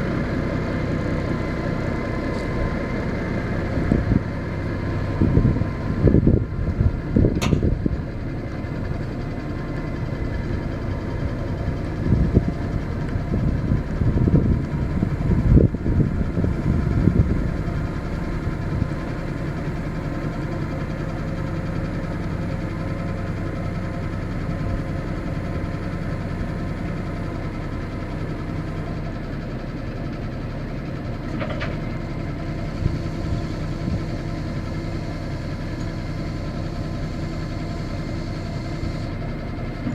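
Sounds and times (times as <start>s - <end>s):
truck engine idling: 0.0s - 39.9s
wind buffeting microphone: 5.0s - 8.2s, 12.0s - 18.9s.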